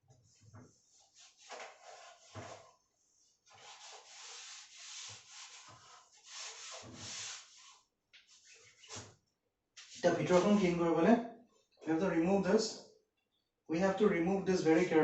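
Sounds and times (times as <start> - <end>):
cloth rubbing glass: 9.8 - 10.8.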